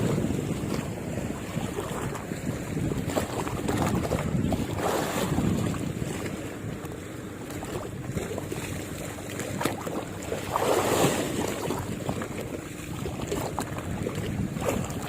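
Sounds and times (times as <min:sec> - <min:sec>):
waves lapping: 0:00.0 - 0:15.0
wind buffeting microphone: 0:00.0 - 0:15.0.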